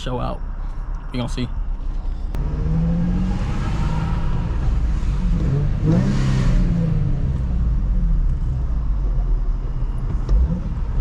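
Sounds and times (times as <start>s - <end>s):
car engine revving: 2.3s - 11.0s.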